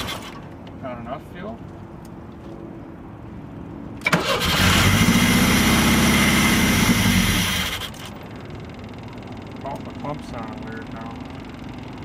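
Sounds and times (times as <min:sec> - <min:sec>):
car engine starting and running: 0:04.0 - 0:12.0.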